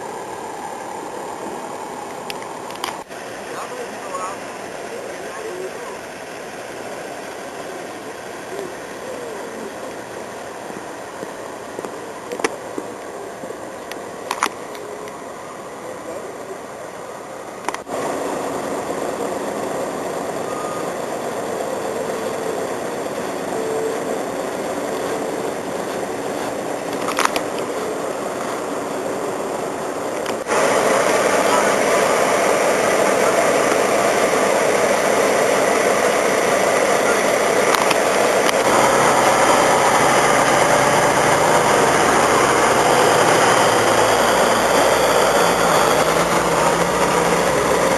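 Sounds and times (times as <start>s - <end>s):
outdoor noise: 0.0s - 47.9s
vehicle engine running: 17.7s - 47.9s.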